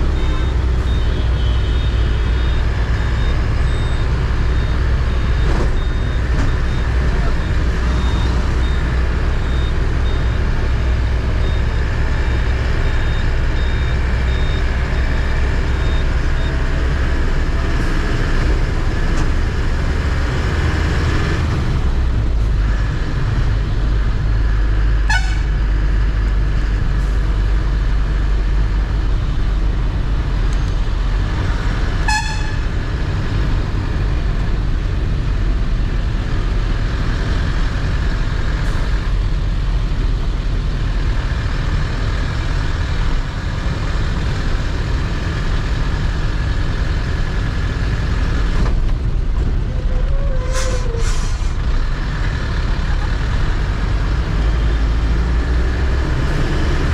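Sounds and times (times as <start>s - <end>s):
truck engine rumbling: 0.0s - 56.9s
faint high beep: 0.1s - 10.4s
horn toots: 25.1s - 25.6s, 32.0s - 32.7s.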